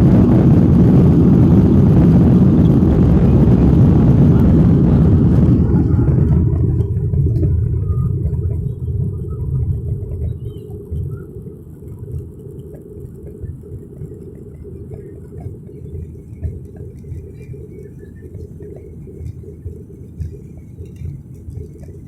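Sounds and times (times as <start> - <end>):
jet engine rumble: 0.0 - 22.0.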